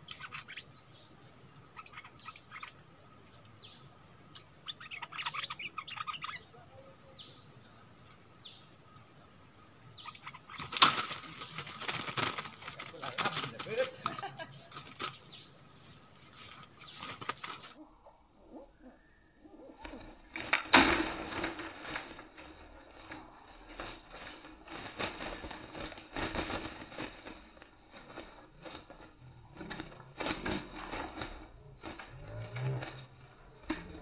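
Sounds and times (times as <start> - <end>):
birds' wings flapping: 10.1 - 17.8, 19.8 - 34.0
birds knocking against wire cage: 10.5 - 15.2.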